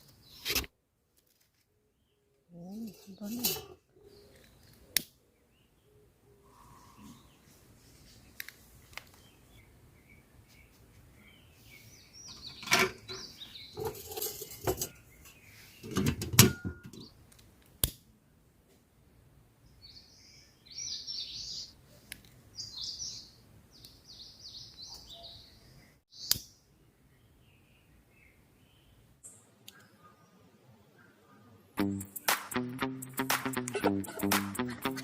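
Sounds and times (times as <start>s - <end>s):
forest birds chirping: 1.8s - 16.2s, 16.8s - 17.2s, 19.6s - 31.8s
knocks and clatter of handling: 12.3s - 15.0s, 15.8s - 17.1s.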